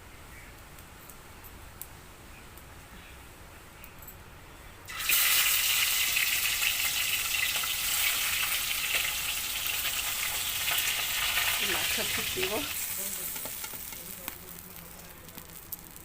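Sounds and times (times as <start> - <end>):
fish sizzling in hot oil: 4.9 - 16.0.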